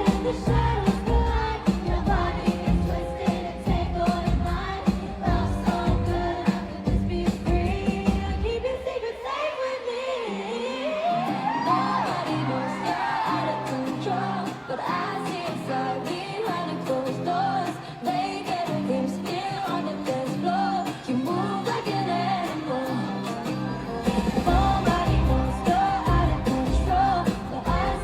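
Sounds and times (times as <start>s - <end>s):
pop song with female vocals: 0.0s - 28.0s.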